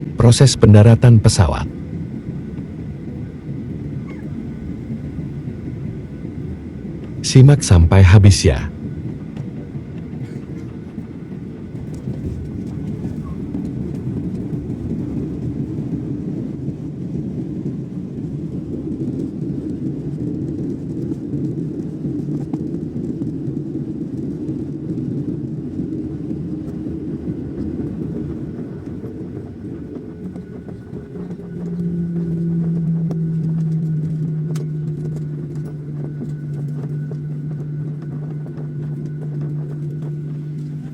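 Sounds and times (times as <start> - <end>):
steady low drone: 0.0 - 19.5, 24.5 - 40.9
airliner low rumble: 0.0 - 40.9.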